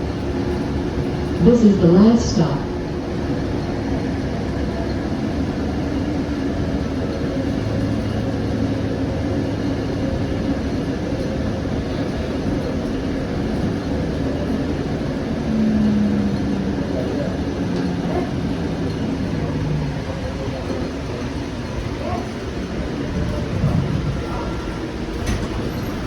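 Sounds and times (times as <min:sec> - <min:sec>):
light rail car rumbling: 0:00.0 - 0:26.0
louder hum: 0:14.7 - 0:21.0.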